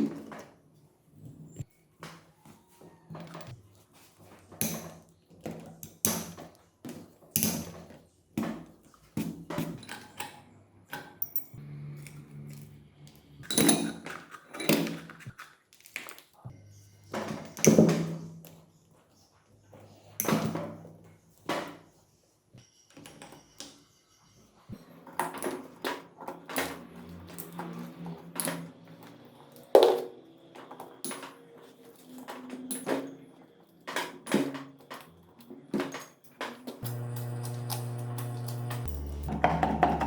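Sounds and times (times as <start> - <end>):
metal parts and tools knocking: 9.6 - 11.6.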